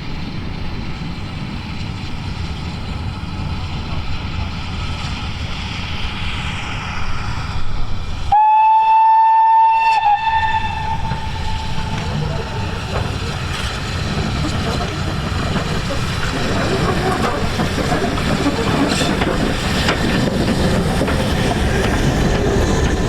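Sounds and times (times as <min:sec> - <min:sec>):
train horn: 0:08.3 - 0:12.1
steady rumbling: 0:10.0 - 0:23.0.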